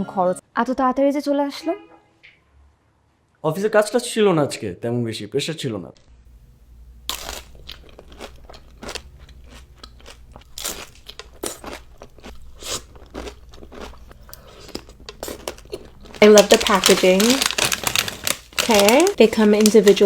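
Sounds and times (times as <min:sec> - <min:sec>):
crunching and chewing crisp food: 0:07.0 - 0:20.0.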